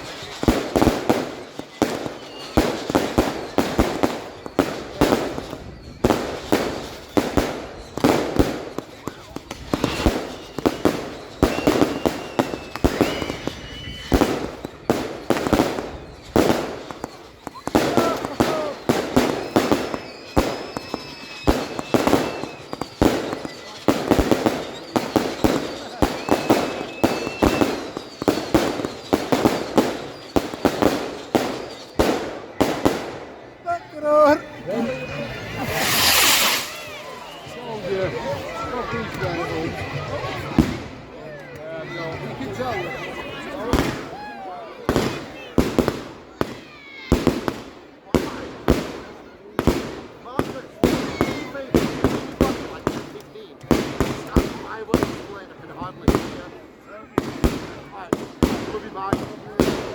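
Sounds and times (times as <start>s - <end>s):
fireworks whistles: 0.0s - 40.9s, 42.5s - 44.2s, 44.8s - 56.6s
fireworks bangs: 0.0s - 59.9s.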